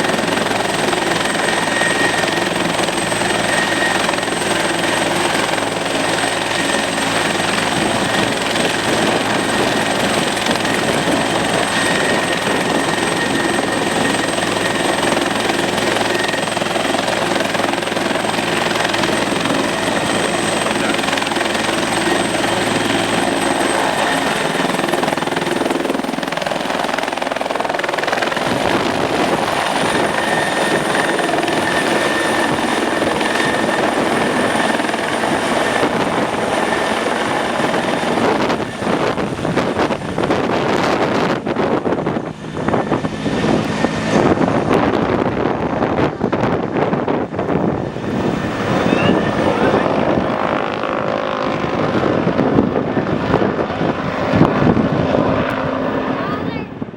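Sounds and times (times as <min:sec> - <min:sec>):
helicopter rotor rush: 0:00.0 - 0:56.9
high turbine whine: 0:00.0 - 0:56.9.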